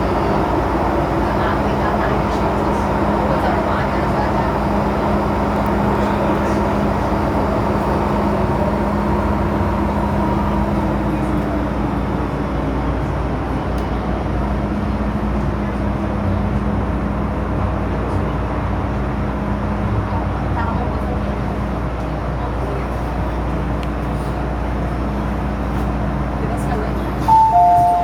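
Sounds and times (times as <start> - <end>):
train cabin rumble: 0.0 - 16.0, 20.1 - 28.0
faint higher tone: 27.3 - 28.0.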